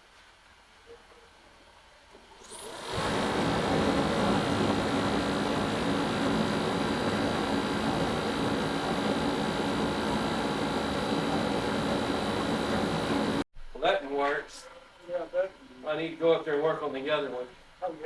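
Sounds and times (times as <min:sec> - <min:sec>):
electric fan running: 0:02.4 - 0:13.4.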